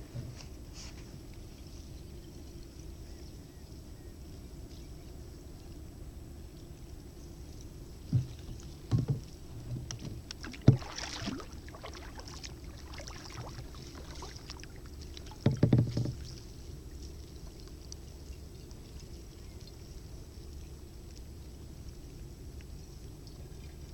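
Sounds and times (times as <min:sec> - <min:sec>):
hollow knocks against kayak hull: 0:08.1 - 0:11.2, 0:15.2 - 0:16.4
water splashing: 0:10.0 - 0:17.1.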